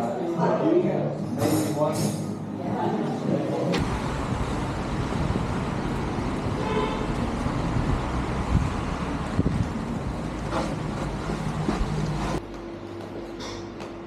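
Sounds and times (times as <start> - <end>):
road traffic rumble: 3.4 - 12.4.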